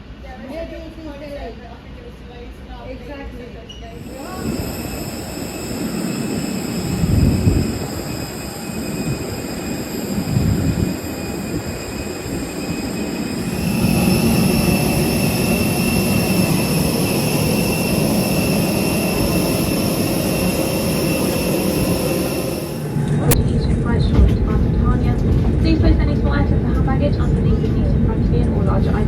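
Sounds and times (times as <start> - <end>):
thin steady whines: 4.0 - 24.0.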